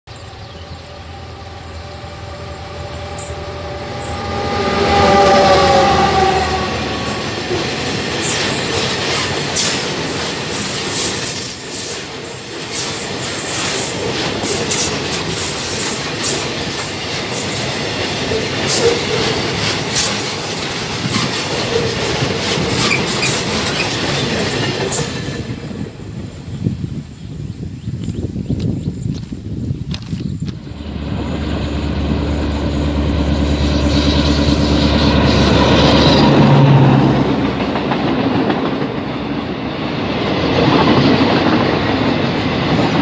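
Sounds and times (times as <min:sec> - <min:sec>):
diesel locomotive engine passing: 0:00.1 - 0:27.5, 0:30.6 - 0:43.0
high wheel squeal: 0:00.2 - 0:16.6, 0:17.3 - 0:24.3
wagon wheels clattering over rail joints: 0:12.6 - 0:25.2.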